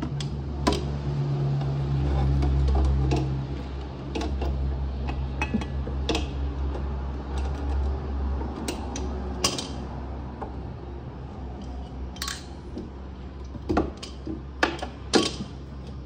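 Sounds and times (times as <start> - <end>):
hand tools clinking on metal: 12.2 - 12.6.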